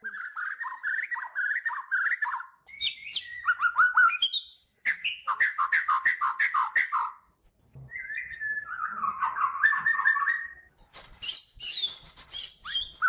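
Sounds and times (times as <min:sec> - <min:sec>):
songbird warbling song: 0:00.0 - 0:07.2.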